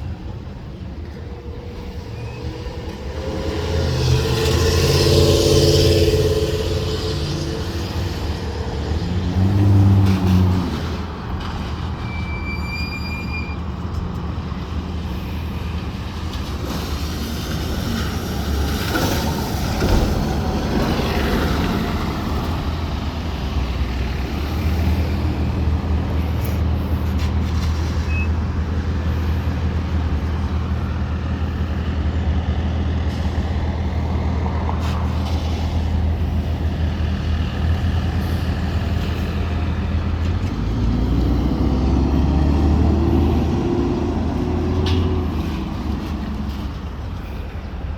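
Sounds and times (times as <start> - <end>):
diesel engine idling: 20.1 - 47.9.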